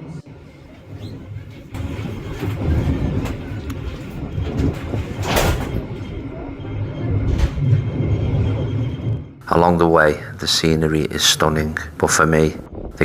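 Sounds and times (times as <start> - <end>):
train rumbling on rails: 0.0 - 13.0.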